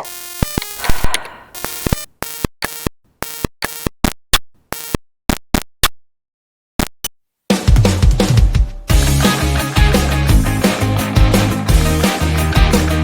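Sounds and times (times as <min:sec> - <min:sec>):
synthesized blips and clicks: 0:00.0 - 0:06.0.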